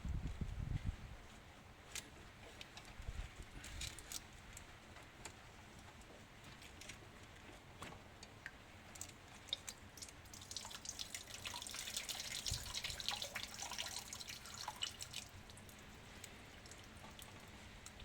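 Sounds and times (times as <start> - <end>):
liquid dripping and trickling: 8.2 - 18.0.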